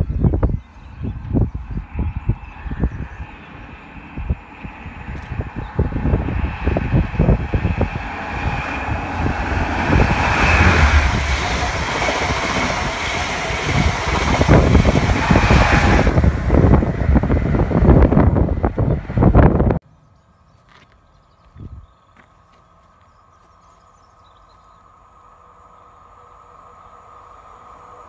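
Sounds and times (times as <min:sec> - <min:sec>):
train wheel and rail noise: 0:00.0 - 0:19.8, 0:20.8 - 0:28.0
wind thumps on microphone: 0:04.1 - 0:19.8.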